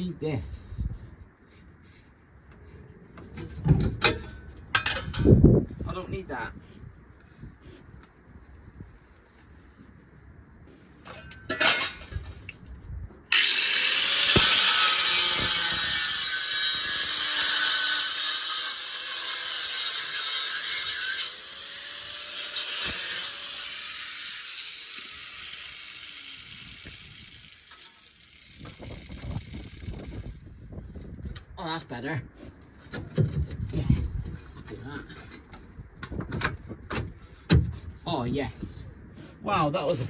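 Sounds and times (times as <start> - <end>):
power tool cutting steel: 13.3 - 30.2.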